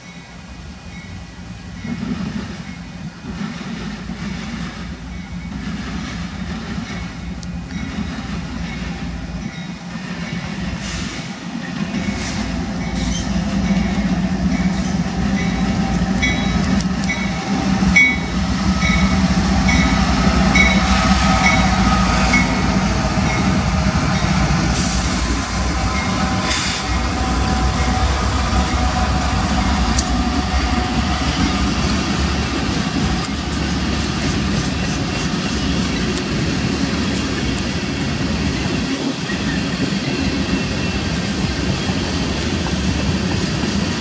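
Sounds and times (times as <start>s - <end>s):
locomotive engines rumbling: 0.0s - 44.0s
locomotive bell ringing: 12.0s - 24.6s, 25.7s - 31.7s.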